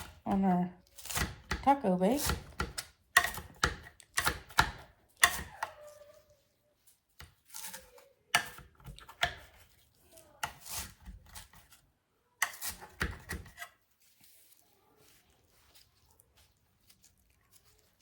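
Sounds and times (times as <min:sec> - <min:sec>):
knife chopping lettuce on board: 0:01.0 - 0:05.7, 0:07.2 - 0:09.8, 0:10.4 - 0:11.8, 0:12.4 - 0:13.8.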